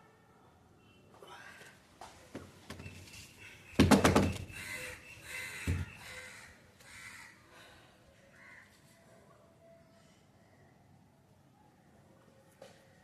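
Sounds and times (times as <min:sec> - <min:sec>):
harsh bird calls: 0:02.7 - 0:07.4
clatter of knocks: 0:03.8 - 0:04.4.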